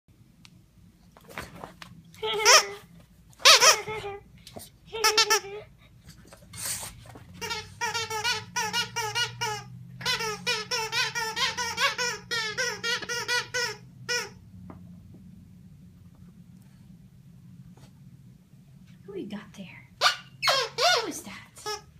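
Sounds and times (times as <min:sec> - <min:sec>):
squeaky dog toy squeaking: 0:02.2 - 0:04.2, 0:05.0 - 0:05.7, 0:07.3 - 0:14.4, 0:20.0 - 0:21.9.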